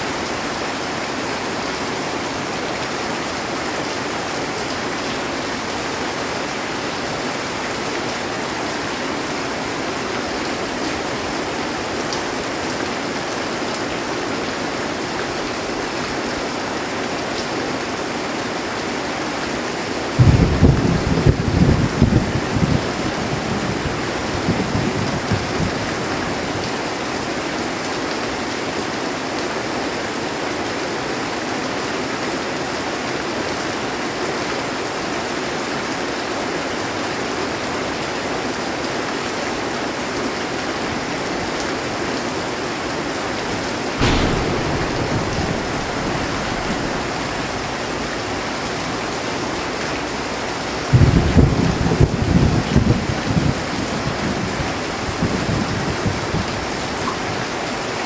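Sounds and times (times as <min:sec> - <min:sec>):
heavy rain on a metal roof: 0:00.0 - 0:58.0
thunder rumbling: 0:20.2 - 0:25.7, 0:44.0 - 0:54.2.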